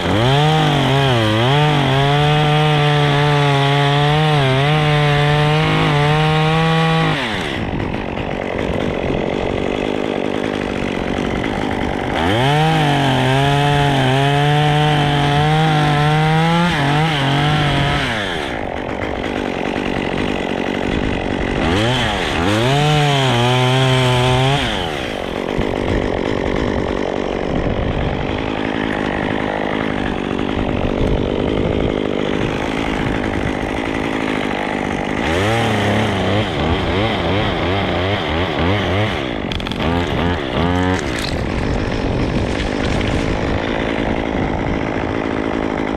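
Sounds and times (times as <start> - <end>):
chainsaw cutting wood: 0.0 - 45.9
chainsaw running: 0.0 - 45.9.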